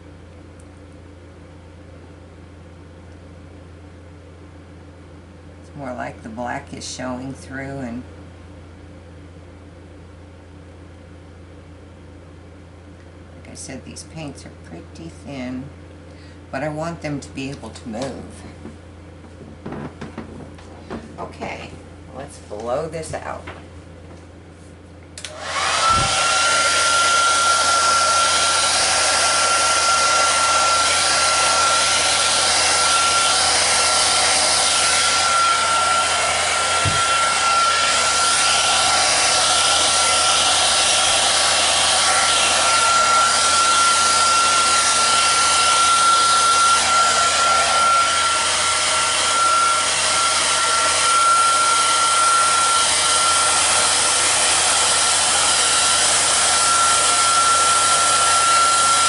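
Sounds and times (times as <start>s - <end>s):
hair dryer motor whine: 25.2s - 59.0s
rush of air: 25.3s - 26.5s.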